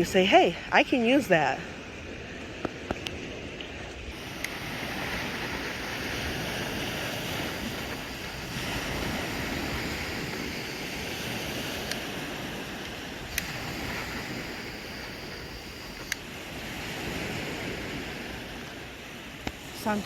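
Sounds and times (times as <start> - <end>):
ocean surf: 0.0 - 20.0
wind on microphone: 0.0 - 20.0
sharp clicks: 12.8 - 16.3.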